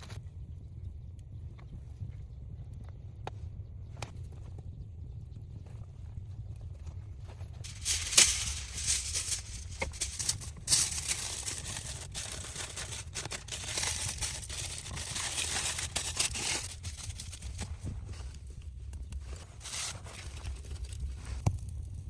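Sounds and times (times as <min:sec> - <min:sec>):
material crinkling and rustling: 0:07.2 - 0:21.5.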